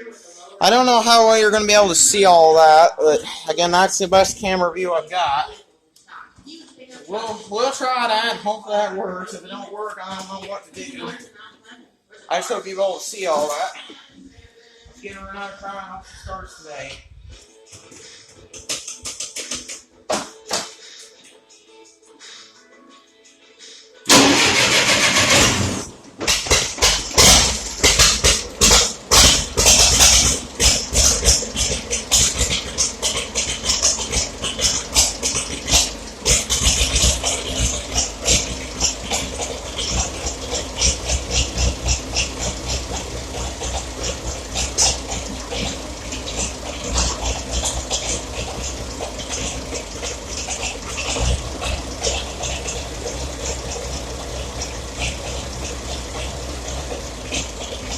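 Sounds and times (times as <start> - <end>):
tractor engine cranking and running: 24.1 - 57.9.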